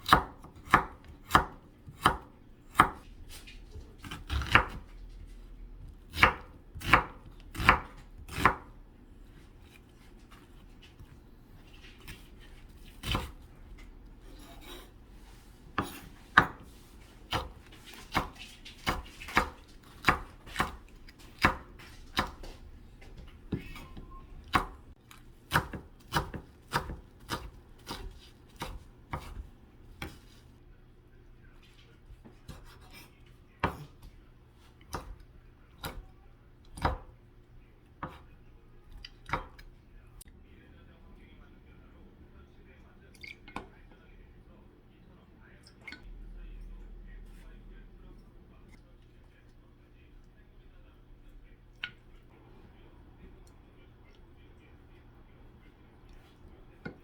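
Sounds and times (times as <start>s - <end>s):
knife chopping on cutting board: 0.0s - 5.0s, 5.8s - 8.8s, 12.0s - 15.0s, 15.7s - 24.8s, 25.5s - 30.4s, 32.2s - 34.0s, 34.9s - 36.1s, 36.8s - 37.2s, 38.0s - 38.3s.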